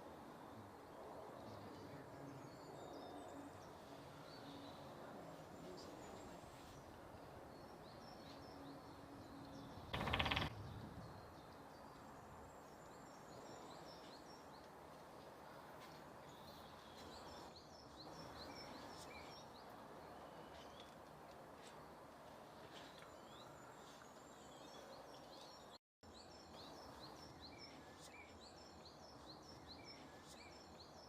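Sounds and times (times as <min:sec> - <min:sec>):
small birds chirping faintly: 0:00.0 - 0:31.0
woodpecker drumming on wood: 0:09.9 - 0:10.6.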